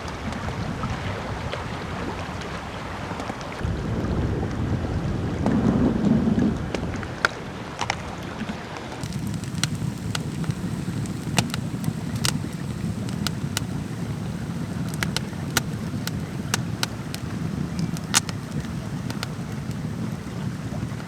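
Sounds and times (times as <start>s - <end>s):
wood fire crackling and popping: 9.0s - 21.0s.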